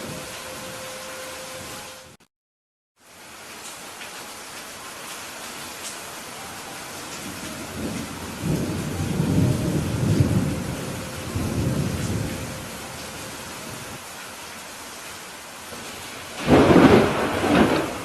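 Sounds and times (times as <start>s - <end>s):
steady rain: 0.0s - 2.2s, 3.0s - 18.0s
thunder rumbling: 7.1s - 14.0s, 15.8s - 18.0s.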